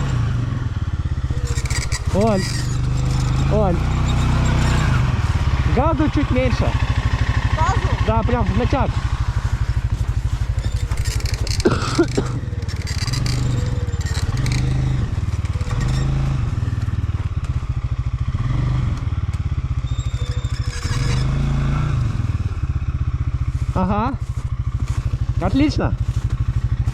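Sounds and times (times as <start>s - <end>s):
quad bike engine revving: 0.0s - 26.9s.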